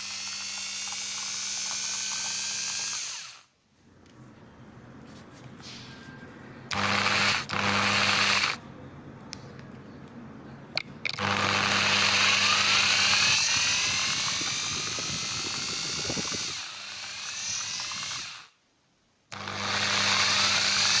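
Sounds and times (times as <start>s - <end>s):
electric drill grinding chalk: 0.0s - 3.5s, 6.7s - 8.6s, 11.1s - 18.6s, 19.3s - 21.0s.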